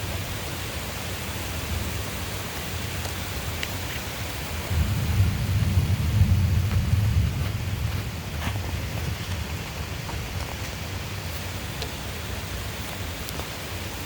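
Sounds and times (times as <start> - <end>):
steady rain: 0.0 - 14.0
thunder rumbling: 4.6 - 11.3.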